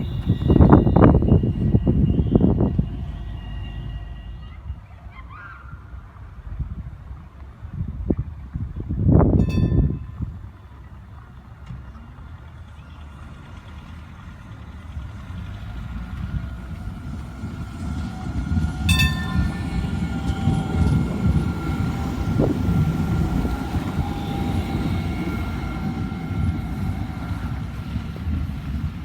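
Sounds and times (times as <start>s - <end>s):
tram running past: 0.0s - 29.0s
brief ringing note: 18.9s - 19.8s.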